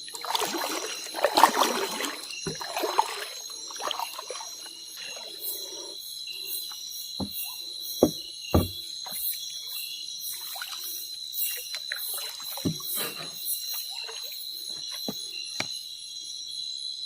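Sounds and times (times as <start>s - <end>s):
water splashing and trickling: 0.0s - 15.4s
insect chorus: 0.0s - 17.0s
sharp knocks: 7.2s - 8.8s.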